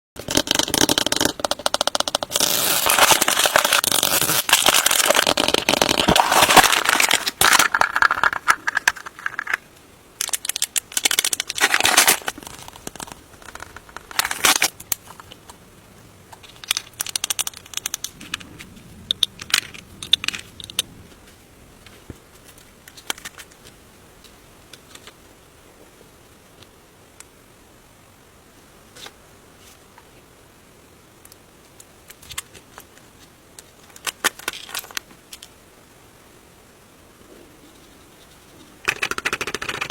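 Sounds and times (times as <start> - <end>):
plastic packaging crinkling and tearing: 2.2 - 9.6, 10.2 - 15.4.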